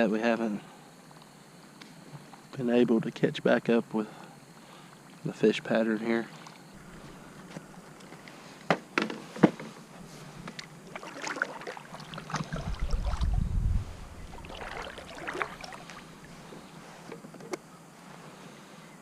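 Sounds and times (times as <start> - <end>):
water swishing from paddle strokes: 6.2 - 8.6, 9.3 - 17.2
wind rumble on microphone: 12.2 - 16.4.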